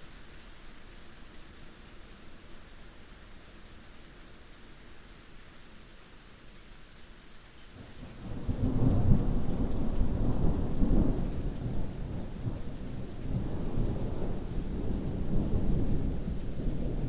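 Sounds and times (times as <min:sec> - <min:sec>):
rain hiss: 0:00.0 - 0:17.0
rolling thunder rumble: 0:08.0 - 0:17.0.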